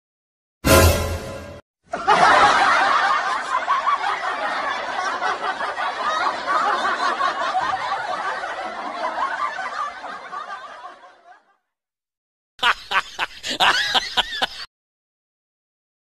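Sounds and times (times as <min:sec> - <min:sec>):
people laughing together: 0:01.9 - 0:11.7, 0:12.6 - 0:14.7.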